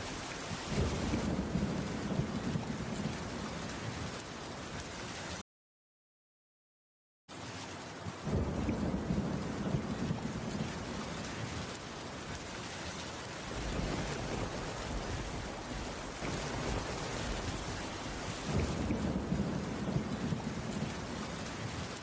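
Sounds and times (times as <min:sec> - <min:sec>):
steady rainfall: 0:00.0 - 0:05.4, 0:07.3 - 0:22.0
thunder rumbling: 0:00.5 - 0:04.2, 0:08.3 - 0:12.3, 0:13.4 - 0:22.0.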